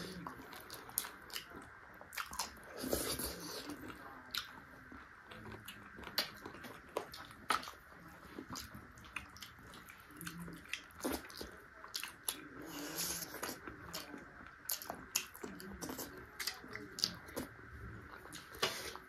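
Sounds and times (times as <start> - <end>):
person chewing chicken feet: 0.0 - 4.6.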